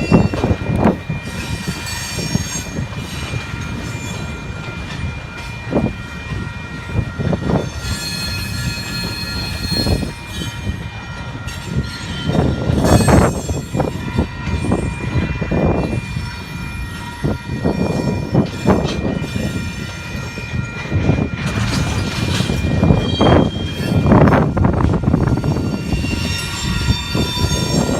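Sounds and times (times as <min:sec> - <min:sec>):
train cars rumbling on rails: 0:00.0 - 0:27.9
high-pitched wheel squeal: 0:07.6 - 0:10.6, 0:22.0 - 0:27.9.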